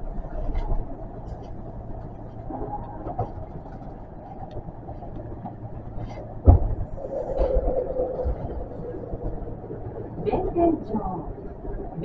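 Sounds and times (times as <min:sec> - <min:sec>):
electric train hum from cab: 0:00.0 - 0:12.0.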